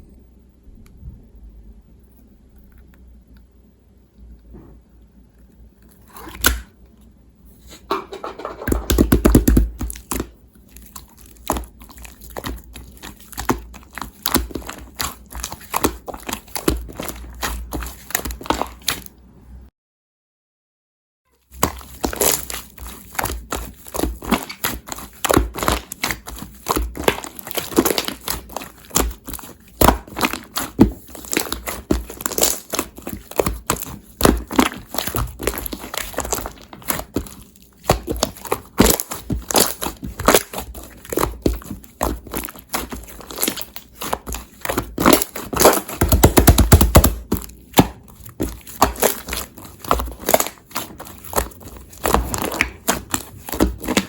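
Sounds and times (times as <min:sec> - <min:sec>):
rustling and crinkling: 0:07.6 - 0:19.1, 0:21.4 - 0:54.0.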